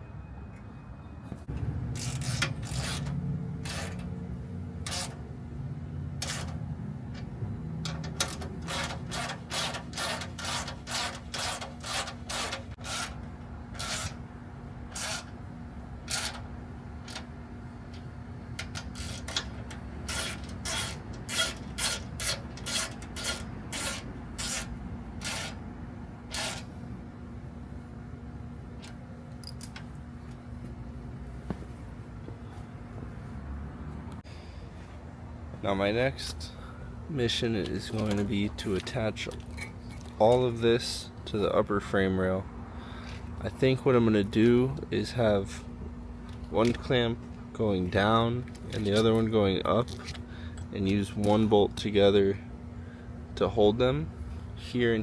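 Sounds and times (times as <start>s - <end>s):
steady low hum: 0.0s - 55.0s
hand tool rasping strokes: 2.0s - 4.0s, 4.8s - 5.2s, 8.0s - 14.2s, 14.9s - 15.4s, 18.7s - 25.6s, 26.3s - 26.7s.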